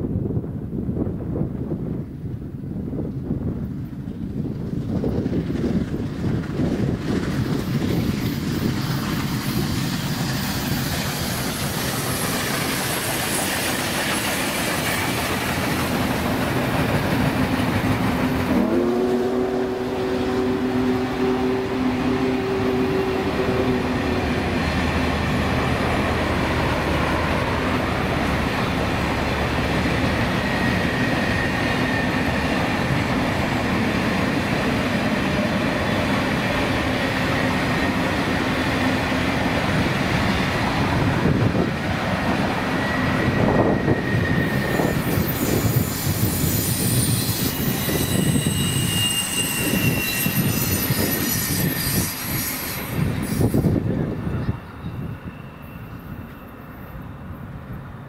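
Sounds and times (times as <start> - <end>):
train wheels clattering on rails: 3.0 - 19.2, 21.8 - 56.6
high-pitched wheel squeal: 42.7 - 53.8, 54.4 - 57.3.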